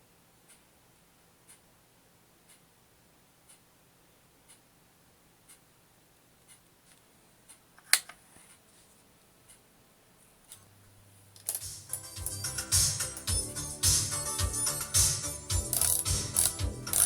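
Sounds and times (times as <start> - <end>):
faint mains hum: 0.0 - 17.0
faint ticking: 15.5 - 17.0
sharp click: 15.7 - 17.0.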